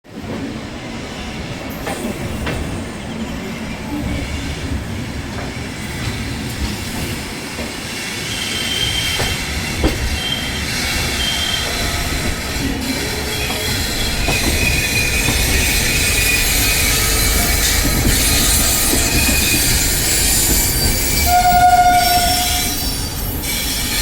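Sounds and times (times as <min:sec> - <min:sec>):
train coaches rumbling over rails: 0:00.1 - 0:24.0
wheels knocking on rail joints: 0:08.9 - 0:22.6
high-pitched wheel squeals: 0:12.9 - 0:23.8.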